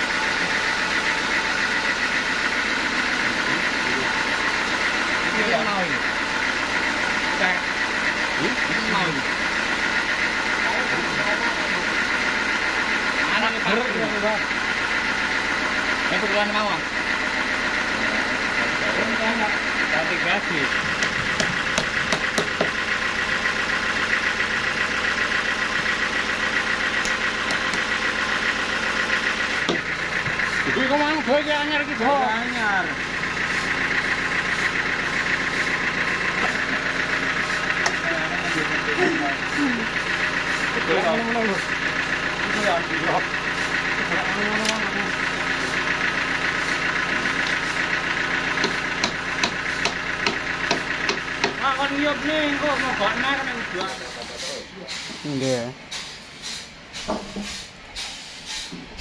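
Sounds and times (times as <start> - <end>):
sawmill machinery drone: 0.0 - 59.0
regular knocking: 20.9 - 22.8, 48.6 - 51.6.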